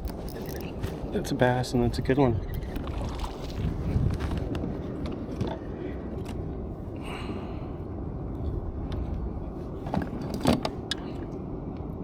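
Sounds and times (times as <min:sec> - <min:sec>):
fishing gear clicks and knocks: 0:00.0 - 0:01.1
steady low rumble: 0:00.0 - 0:12.0.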